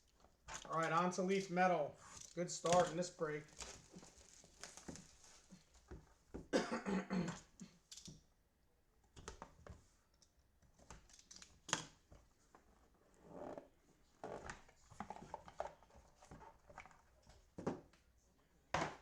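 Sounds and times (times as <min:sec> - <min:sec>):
packs rustling and tearing: 0:02.1 - 0:06.0.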